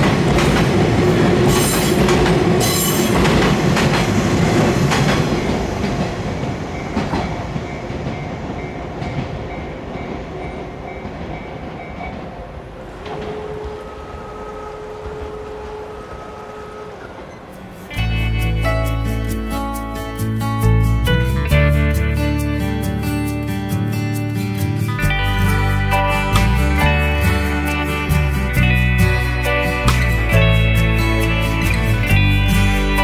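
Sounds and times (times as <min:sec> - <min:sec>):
wheels clacking over rail joints: 0:00.0 - 0:18.4
electric train passing: 0:00.0 - 0:23.2, 0:23.8 - 0:33.0.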